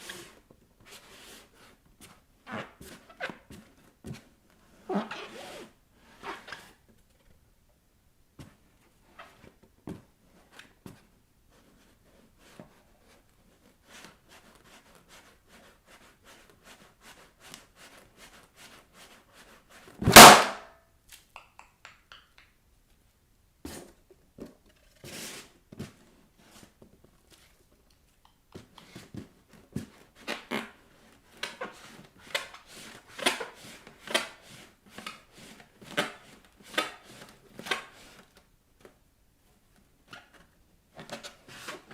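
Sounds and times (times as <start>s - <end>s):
balloon bursting: 20.0s - 20.7s.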